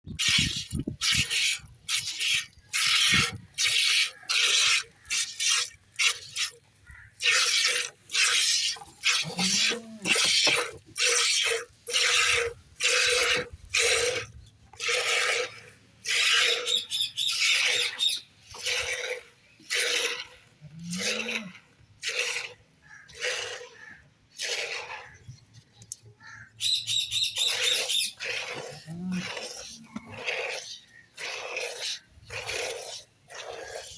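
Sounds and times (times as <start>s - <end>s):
milk squirting into pail: 0.1s - 20.4s, 27.4s - 33.9s.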